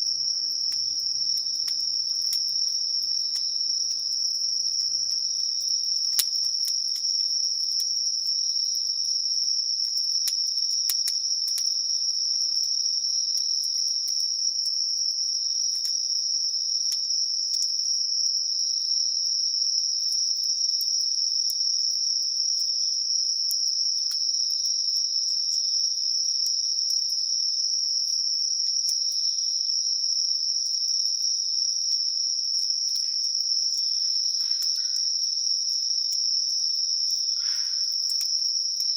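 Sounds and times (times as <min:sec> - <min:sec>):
campfire crackling: 0:00.0 - 0:18.7, 0:32.8 - 0:35.5, 0:37.4 - 0:38.9
insects trilling: 0:00.0 - 0:22.8, 0:28.2 - 0:38.9.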